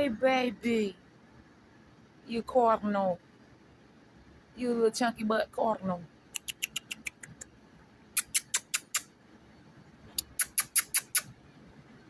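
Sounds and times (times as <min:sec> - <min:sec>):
small animal chipping calls: 0:06.3 - 0:07.5, 0:08.1 - 0:09.1, 0:10.2 - 0:11.4.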